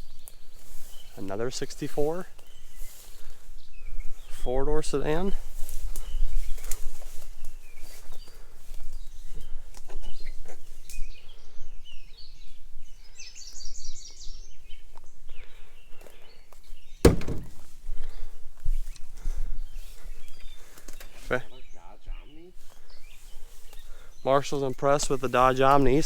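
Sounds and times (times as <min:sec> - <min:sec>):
sharp thump: 0:17.0 - 0:17.7
footsteps: 0:17.0 - 0:19.0.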